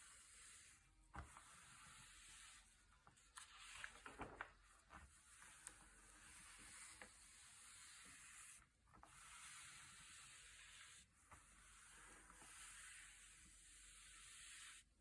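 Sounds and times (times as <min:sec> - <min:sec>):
glossy pages turning: 0:03.4 - 0:04.6.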